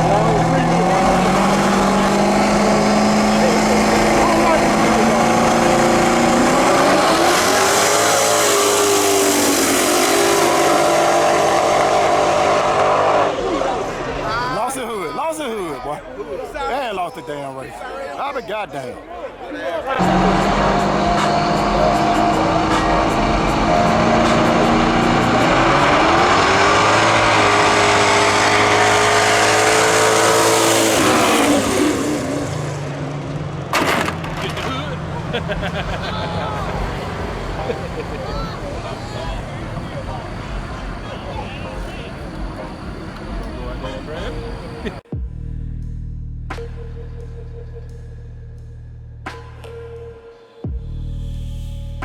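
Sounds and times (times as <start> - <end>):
drag race cars at full throttle: 0.0 - 16.9, 19.9 - 45.1
sharp crack: 33.7 - 35.1.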